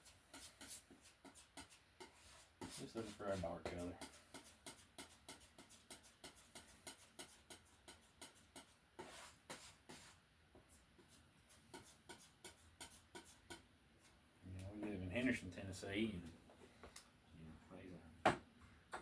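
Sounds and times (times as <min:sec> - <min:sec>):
paint mixing taps and scrapes: 0:00.0 - 0:15.1.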